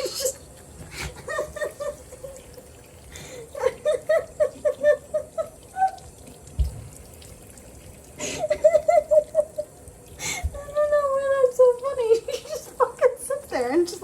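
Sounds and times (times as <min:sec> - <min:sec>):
tap water running into sink: 0:00.0 - 0:14.0
person laughing: 0:03.5 - 0:05.9, 0:08.2 - 0:09.7.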